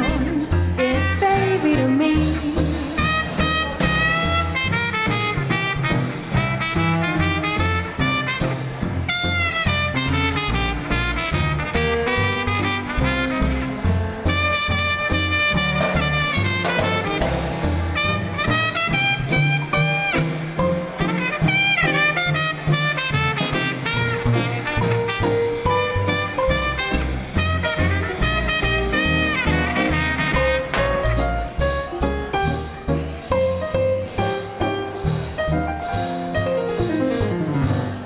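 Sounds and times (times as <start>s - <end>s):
saxophone: 0.0s - 6.0s
trumpet: 0.0s - 32.6s
swing band playing: 0.0s - 38.0s.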